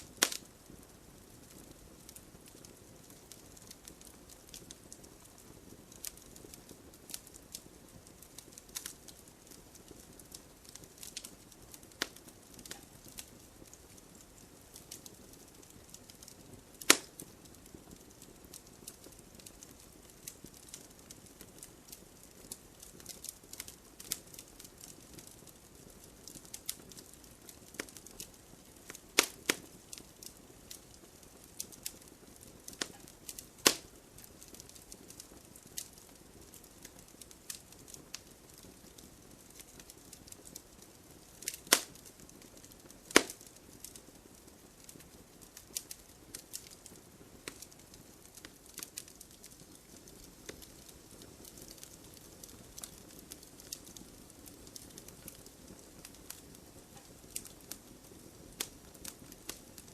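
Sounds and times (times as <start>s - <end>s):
fire crackling: 0.0s - 59.9s
wood fire hissing: 0.0s - 59.9s
loud sharp pops: 16.9s - 17.1s, 33.6s - 33.9s, 41.7s - 42.0s, 43.1s - 43.4s.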